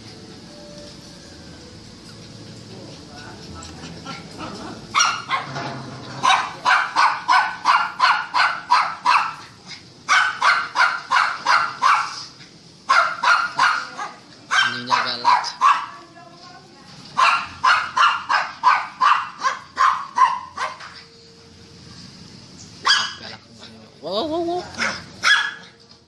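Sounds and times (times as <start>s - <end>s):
dogs barking fiercely: 3.2s - 16.1s, 17.1s - 21.1s, 22.8s - 23.4s, 24.7s - 25.8s.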